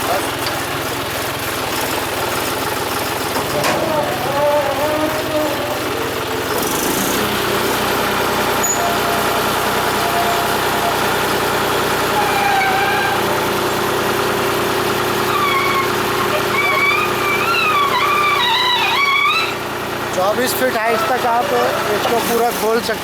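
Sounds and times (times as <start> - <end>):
diesel engine under load: 0.0 - 23.0
high wavering calls: 3.9 - 7.8, 8.4 - 13.8, 15.3 - 19.7.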